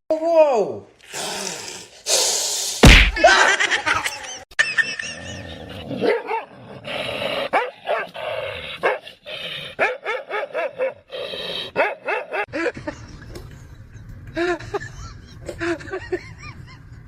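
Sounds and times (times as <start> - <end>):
dog barking and yipping: 9.8 - 11.0, 11.8 - 12.5.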